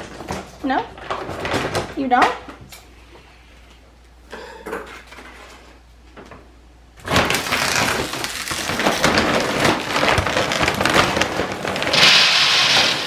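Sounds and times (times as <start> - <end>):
dry kibble poured into container: 10.5 - 13.0.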